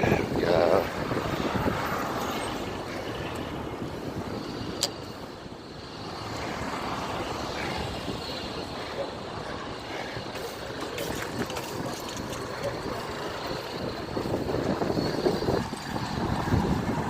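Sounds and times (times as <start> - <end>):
wind buffeting microphone: 0.0 - 5.3, 7.6 - 17.0
tyres rumbling on path: 0.0 - 17.0
vehicle traffic noise: 0.0 - 17.0.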